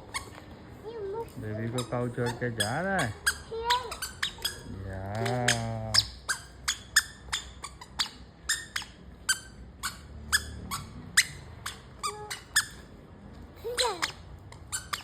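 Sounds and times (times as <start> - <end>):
short high squeaks: 1.7 - 12.9, 13.6 - 15.0.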